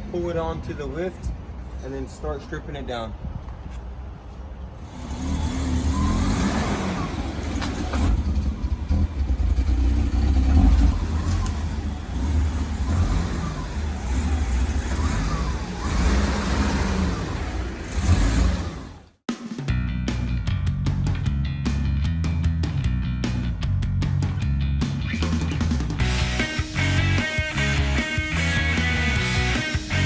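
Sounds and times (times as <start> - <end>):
car engine revving: 4.8 - 19.2.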